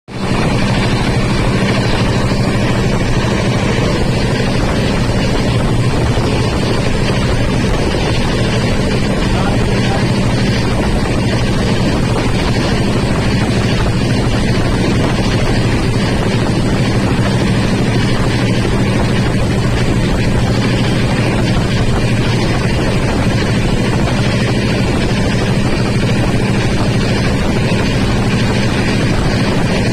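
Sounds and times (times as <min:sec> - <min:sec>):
low hum: 0:00.1 - 0:29.9
train rumbling: 0:00.1 - 0:29.9.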